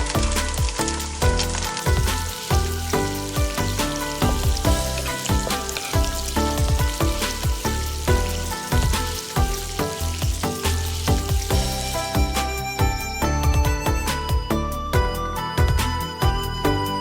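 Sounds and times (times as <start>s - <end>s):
ribs sizzling in hot oil: 0.0s - 13.0s
background music: 0.0s - 17.0s.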